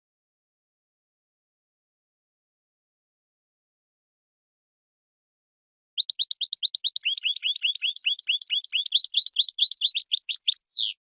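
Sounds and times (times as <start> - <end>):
finch singing trills: 6.0 - 11.0.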